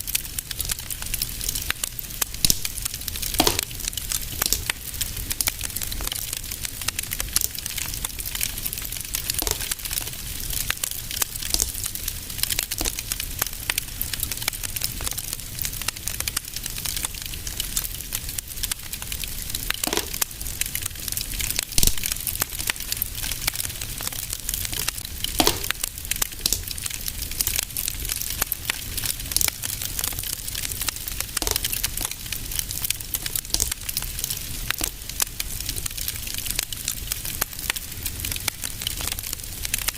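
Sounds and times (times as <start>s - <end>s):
fire crackling in fireplace: 0.0s - 39.9s
fire popping: 0.0s - 39.9s.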